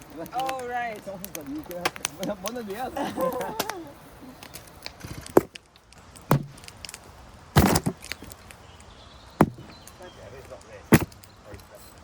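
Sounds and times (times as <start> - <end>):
sharp knocks: 6.3 - 6.6, 7.6 - 8.0, 9.4 - 9.7, 10.9 - 11.2.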